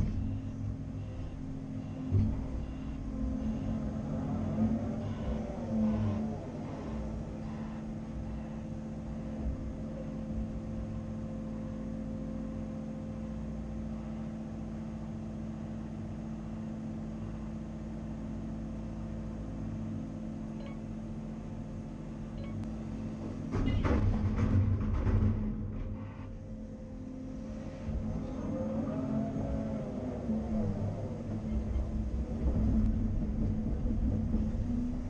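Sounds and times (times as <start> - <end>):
excavator diesel engine running: 0.0 - 35.0
tonal hum: 0.0 - 35.0
sharp knocks: 23.2 - 26.0.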